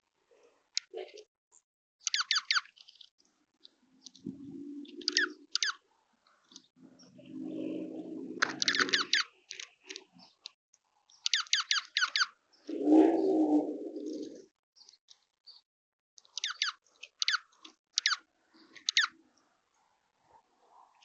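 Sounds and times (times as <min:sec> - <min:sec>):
high squeaky bird chips: 0:02.0 - 0:03.1, 0:05.0 - 0:05.8, 0:08.6 - 0:09.7, 0:11.2 - 0:12.4, 0:16.2 - 0:19.2
low bird cooing: 0:04.2 - 0:05.7, 0:06.8 - 0:09.3, 0:12.6 - 0:14.5.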